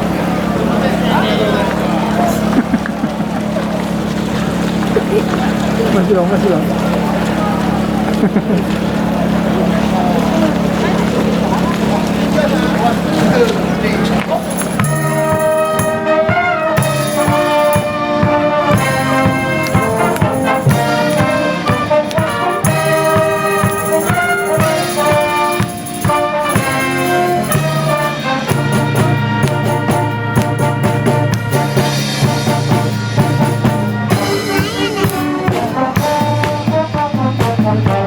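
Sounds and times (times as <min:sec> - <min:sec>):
brass band playing: 0:12.2 - 0:38.0
drum beat: 0:14.3 - 0:38.0.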